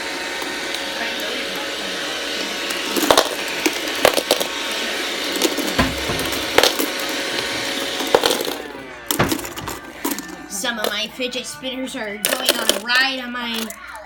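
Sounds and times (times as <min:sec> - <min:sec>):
robot vacuum whirring: 0:00.0 - 0:10.3.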